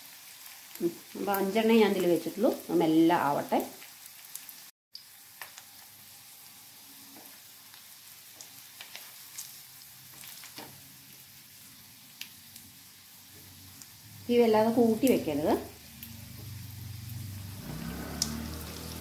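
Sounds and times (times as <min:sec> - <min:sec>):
hot oil sizzling: 0:00.0 - 0:19.0.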